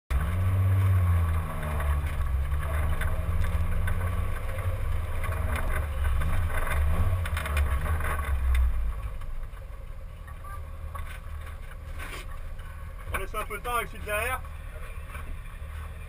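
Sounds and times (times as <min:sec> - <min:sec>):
car engine running at low revs: 0:00.1 - 0:16.0.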